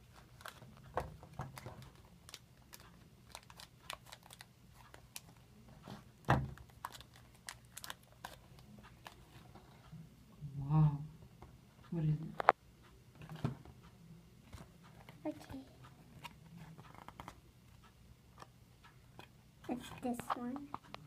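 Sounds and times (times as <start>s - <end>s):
plastic packaging crinkling: 1.4s - 5.3s, 6.6s - 8.4s.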